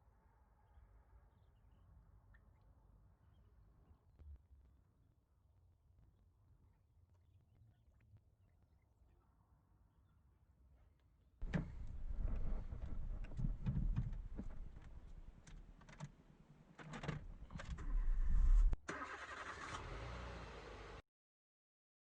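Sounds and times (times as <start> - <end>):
car engine running unevenly: 11.4 - 15.5
clicks and knocks: 11.4 - 16.1.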